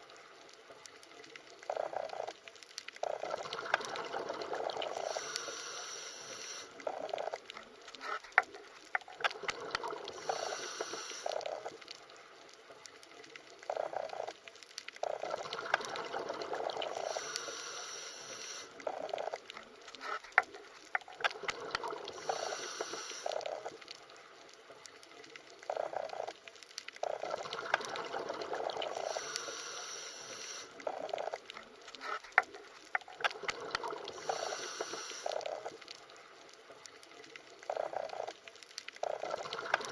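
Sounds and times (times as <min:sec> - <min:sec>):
bubbling gurgling water underwater: 0:00.9 - 0:05.5, 0:06.7 - 0:12.0, 0:12.9 - 0:17.6, 0:18.7 - 0:24.2, 0:24.8 - 0:29.6, 0:30.7 - 0:39.9.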